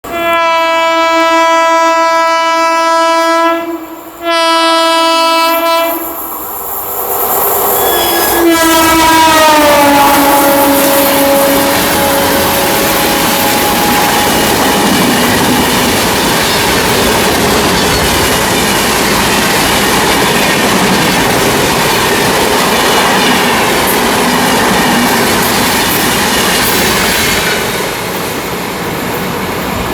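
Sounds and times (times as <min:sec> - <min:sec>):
train coaches rumbling past: 0:00.0 - 0:29.9
locomotive horn blasts: 0:00.1 - 0:06.1, 0:07.9 - 0:15.1
train wheels clicking on rail joints: 0:06.0 - 0:29.9.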